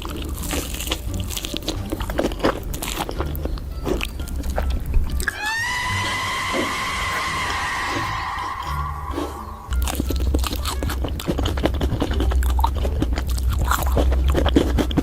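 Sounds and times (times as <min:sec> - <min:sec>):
crunching and chewing food: 0:00.0 - 0:15.0
steady high tone: 0:05.2 - 0:10.1.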